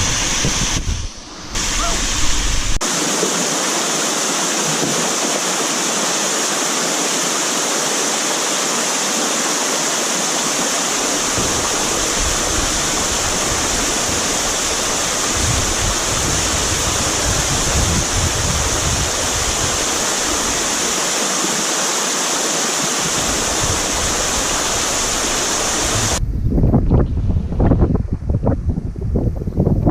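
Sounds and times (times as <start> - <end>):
wind buffeting microphone: 0.0 - 2.8, 11.0 - 20.7, 23.0 - 29.9
small waterfall rushing: 1.5 - 26.2.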